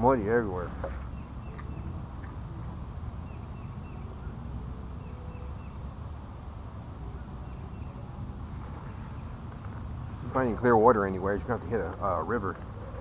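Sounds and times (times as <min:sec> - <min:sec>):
high insect buzz: 0:00.3 - 0:13.0
bird chirping: 0:00.8 - 0:02.5, 0:03.2 - 0:11.6.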